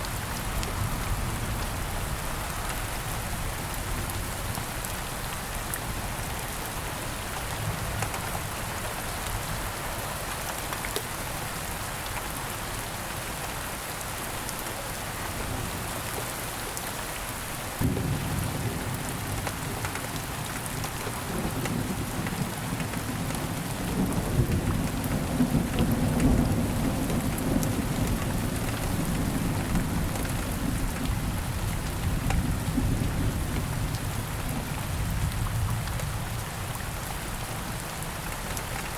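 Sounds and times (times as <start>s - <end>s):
steady rain falling: 0.0s - 38.9s
thunder rumbling: 17.8s - 19.4s.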